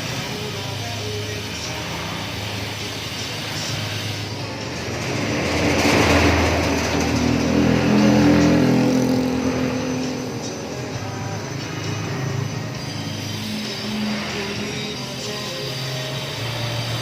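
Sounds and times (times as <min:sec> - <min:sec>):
background music: 0:00.0 - 0:17.0
motor vehicle passing by: 0:03.5 - 0:12.8.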